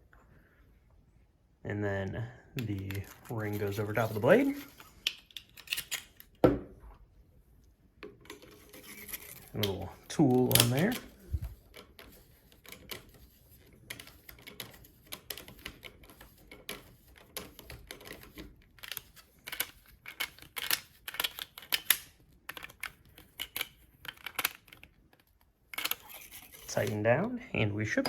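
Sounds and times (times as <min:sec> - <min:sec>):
small tool clicking and scraping: 0:08.2 - 0:27.0.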